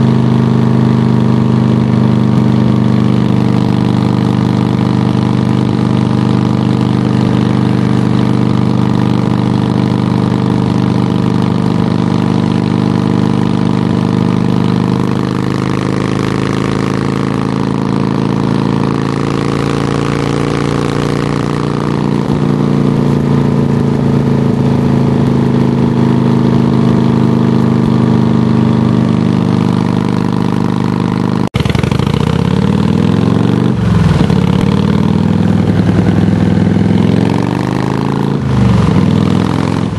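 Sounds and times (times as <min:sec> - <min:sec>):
motorcycle engine idling: 0:00.0 - 0:39.9
motorcycle throttle revving: 0:00.0 - 0:39.9.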